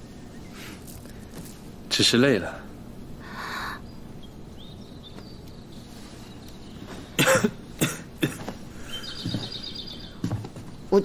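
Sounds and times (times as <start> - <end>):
person coughing: 7.2 - 8.5.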